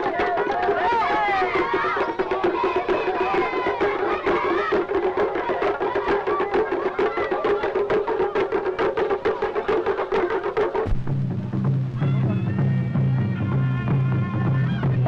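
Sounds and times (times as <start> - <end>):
voices singing: 0.0 - 10.6
sharp percussion beat: 0.0 - 15.0.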